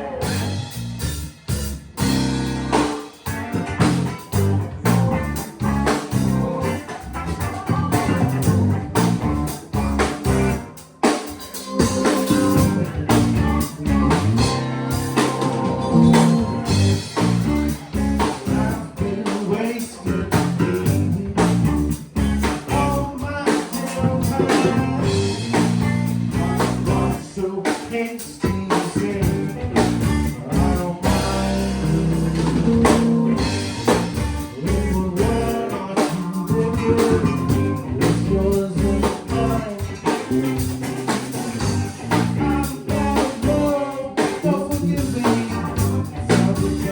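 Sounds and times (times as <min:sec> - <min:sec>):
person singing: 0:00.0 - 0:00.7, 0:06.6 - 0:09.8, 0:15.7 - 0:41.5, 0:42.1 - 0:46.9
drums: 0:00.0 - 0:46.9
electric guitar: 0:00.0 - 0:46.9.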